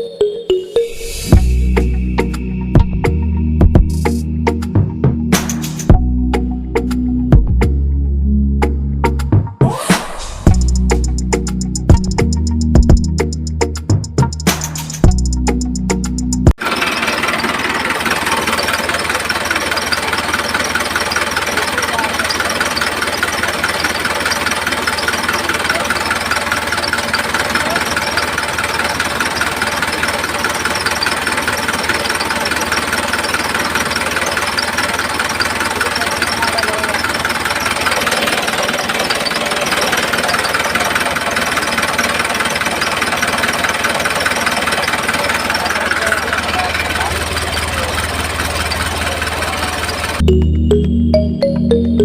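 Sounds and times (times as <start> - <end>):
small motor running with rattle: 16.6 - 50.2.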